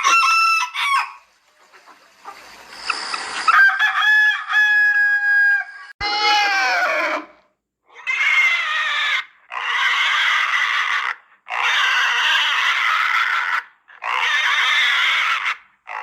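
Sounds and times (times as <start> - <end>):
animal squealing: 6.0 - 16.0.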